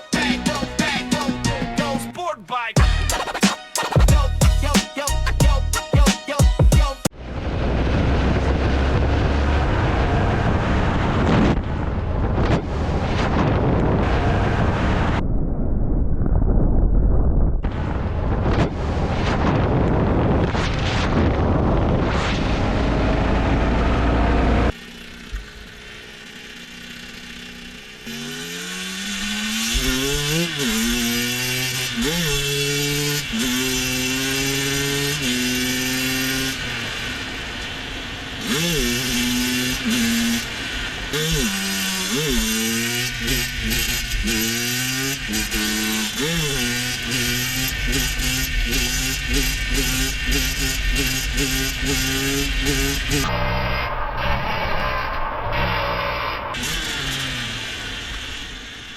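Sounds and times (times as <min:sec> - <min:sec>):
motorcycle engine accelerating: 0:07.1 - 0:15.3, 0:17.6 - 0:58.9
wind noise: 0:07.2 - 0:22.9.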